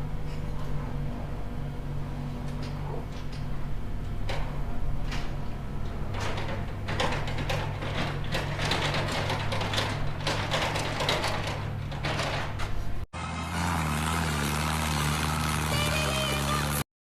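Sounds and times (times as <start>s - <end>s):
engine running: 0.0s - 16.9s
clattering knocks and scrapes: 4.2s - 13.0s.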